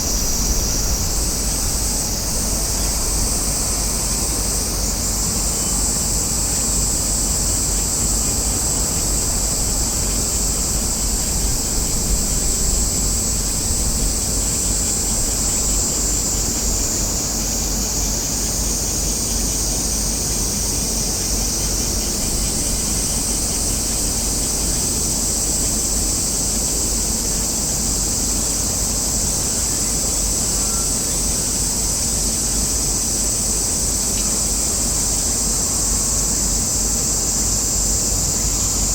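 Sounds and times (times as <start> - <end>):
low wind rumble on microphone: 0.0 - 18.2
high-pitched hiss: 0.0 - 38.9.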